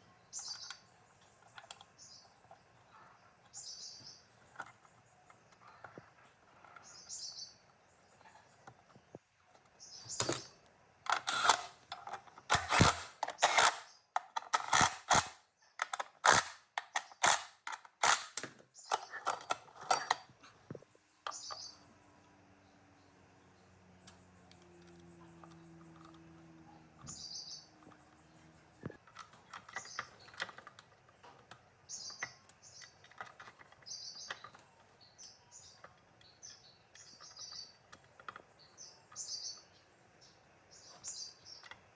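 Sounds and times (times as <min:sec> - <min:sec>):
bird chirps: 0:00.0 - 0:08.9, 0:21.0 - 0:29.0, 0:29.6 - 0:41.9.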